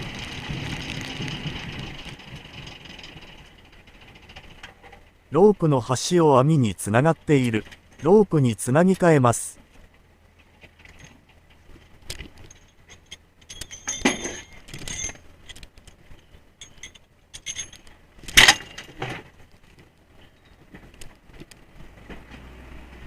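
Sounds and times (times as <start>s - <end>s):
faint low engine hum: 0.0s - 23.0s
metal rope fittings clinking: 10.8s - 19.1s.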